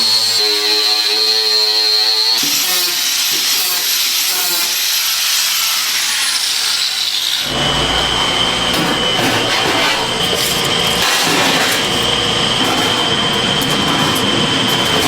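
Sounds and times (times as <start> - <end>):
power tool whine: 0.0 - 15.0
deep rough machine noise: 7.4 - 15.0
hissing grinding noise: 7.4 - 15.0.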